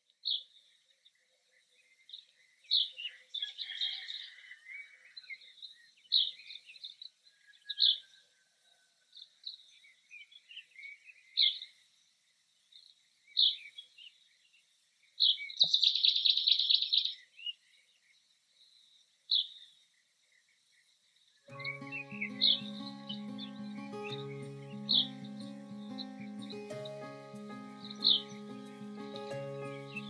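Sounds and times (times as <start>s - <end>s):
songbirds chirping: 21.5s - 30.0s.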